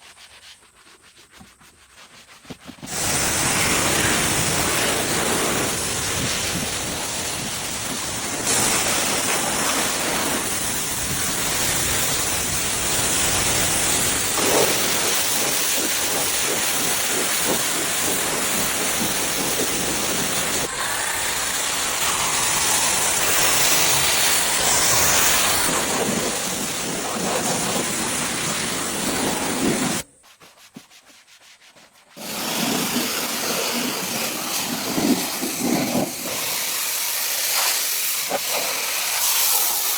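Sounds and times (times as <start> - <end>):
brush rubbing on upholstery: 0.0 - 6.5, 22.4 - 36.6
steam cleaner hissing: 2.9 - 30.1, 32.2 - 39.9.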